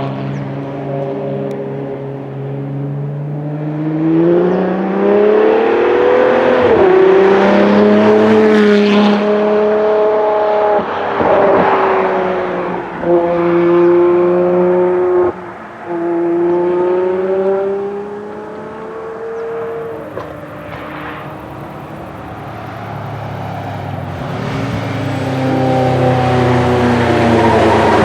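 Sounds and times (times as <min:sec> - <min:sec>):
car engine pulling under load: 0:16.5 - 0:28.0.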